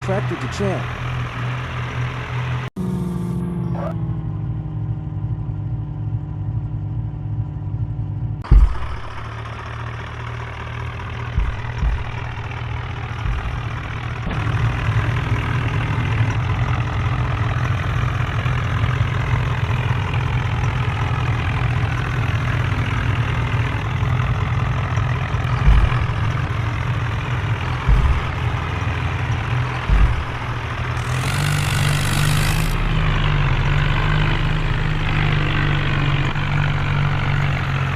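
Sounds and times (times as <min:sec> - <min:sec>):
tractor engine running: 0:00.0 - 0:37.9
short thumps: 0:08.4 - 0:09.7, 0:10.8 - 0:16.2, 0:20.8 - 0:32.8.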